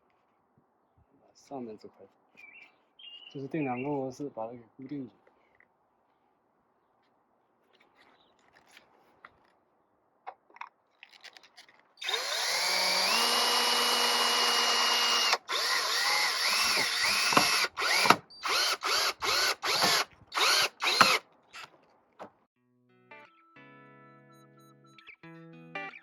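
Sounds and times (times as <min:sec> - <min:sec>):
power drill driving screws into wood: 0:12.0 - 0:21.7.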